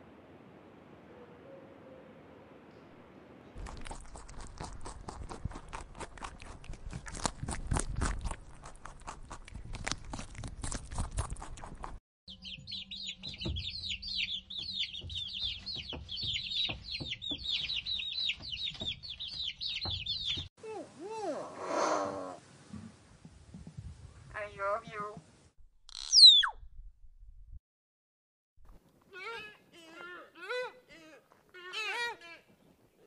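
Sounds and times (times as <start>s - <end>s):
rabbit feeding in grass: 3.6s - 12.0s
ducklings peeping: 12.3s - 20.5s.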